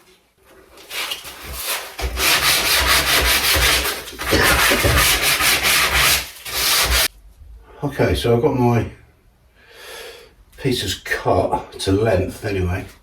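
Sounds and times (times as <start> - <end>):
handsaw cutting timber: 1.4 - 7.1.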